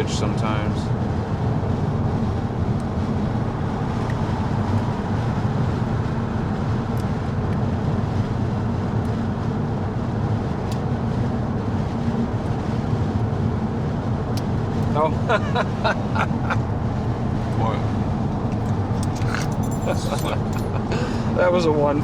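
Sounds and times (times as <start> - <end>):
car cabin road rumble: 0.0 - 22.0.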